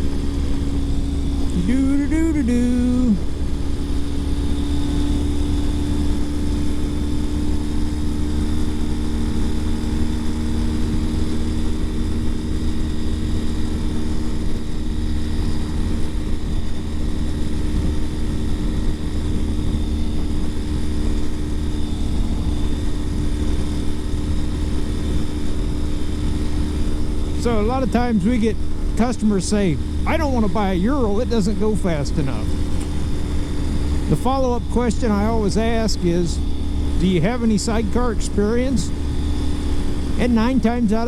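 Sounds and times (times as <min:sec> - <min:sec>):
motorcycle engine running: 0:00.0 - 0:41.0
wind rumble on microphone: 0:03.2 - 0:29.0.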